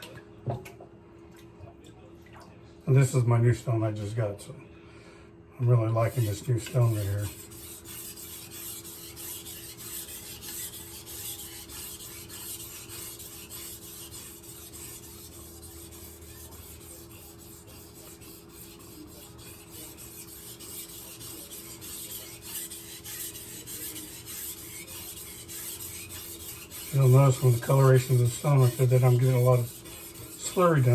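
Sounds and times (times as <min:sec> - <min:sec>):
knife scraping on whetstone: 0:06.0 - 0:30.9.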